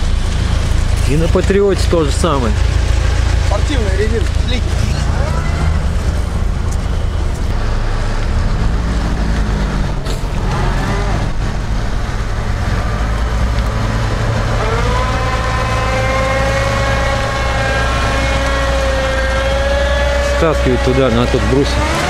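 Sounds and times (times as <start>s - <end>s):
car engine labouring: 0.0s - 22.0s.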